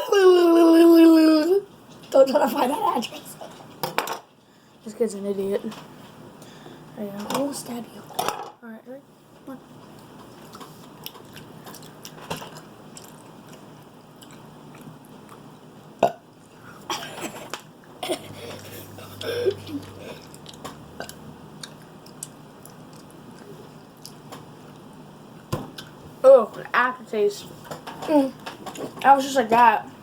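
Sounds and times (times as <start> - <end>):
chewing gummy candy: 9.8 - 15.7, 18.6 - 25.0
wet mouth clicks: 18.6 - 24.2.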